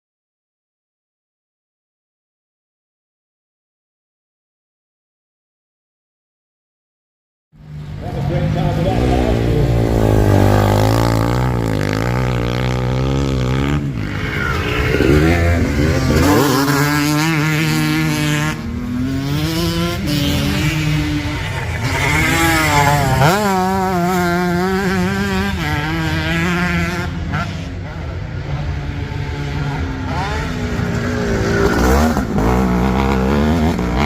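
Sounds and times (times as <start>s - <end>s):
racing motorcycle engines revving: 7.6s - 34.0s.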